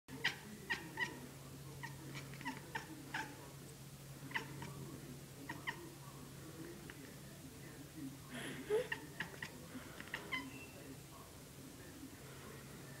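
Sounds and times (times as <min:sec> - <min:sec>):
steady low hum: 0:00.1 - 0:13.0
kitten chattering chirps: 0:00.2 - 0:01.2, 0:01.8 - 0:03.4, 0:05.5 - 0:05.8, 0:08.8 - 0:10.6.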